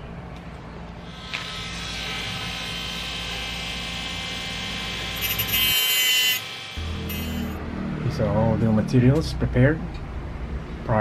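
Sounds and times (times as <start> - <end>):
rotary tool high whine: 1.0 - 7.6
cut-off disc cutting wood: 1.1 - 7.6.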